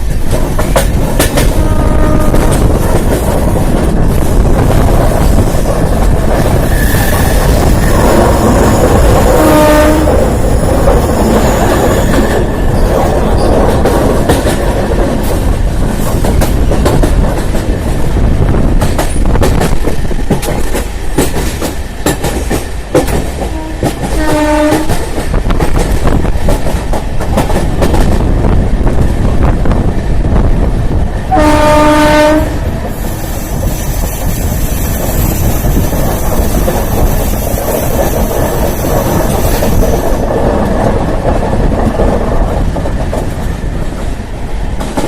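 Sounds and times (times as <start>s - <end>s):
train rumbling: 0.0s - 45.0s
train horn: 1.4s - 2.6s, 8.1s - 10.4s, 23.4s - 25.0s, 31.3s - 32.8s.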